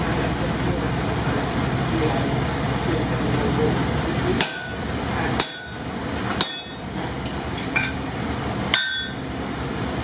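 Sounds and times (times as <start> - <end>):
hammer striking steel punch: 4.4 - 4.8, 5.4 - 5.8, 6.4 - 6.8, 8.7 - 9.2.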